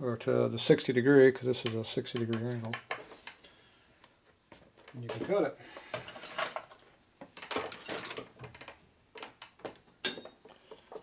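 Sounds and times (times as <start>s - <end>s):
metal clinks and knocks: 7.4s - 10.4s.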